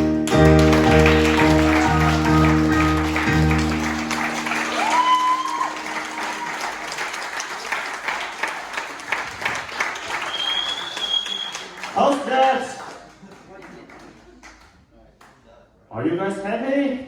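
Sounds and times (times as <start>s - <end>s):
audience clapping: 0.0s - 15.4s
audience cheer: 0.5s - 8.6s.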